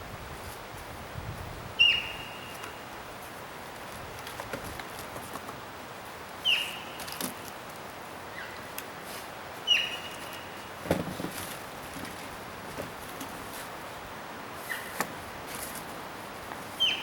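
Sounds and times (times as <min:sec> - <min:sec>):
bird calling: 0:01.8 - 0:03.0, 0:06.4 - 0:07.5, 0:08.3 - 0:08.8, 0:09.6 - 0:10.8, 0:14.6 - 0:15.0, 0:16.7 - 0:17.0.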